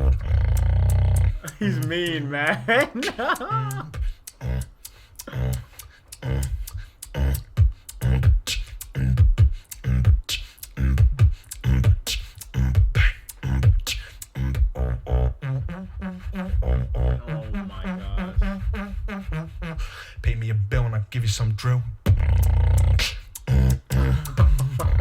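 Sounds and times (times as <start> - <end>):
pitched bass line: 0.0 - 4.6, 14.4 - 21.4
beatboxing: 0.0 - 25.0.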